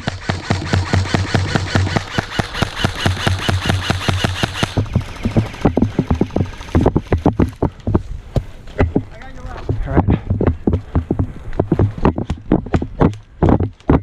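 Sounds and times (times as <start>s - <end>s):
airsoft gun firing automatic: 0.0s - 7.8s
motor hum: 0.0s - 9.9s.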